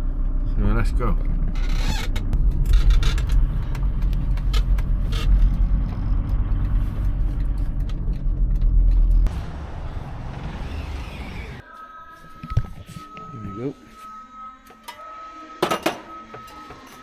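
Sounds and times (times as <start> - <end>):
van engine and road rumble: 0.0 - 11.6.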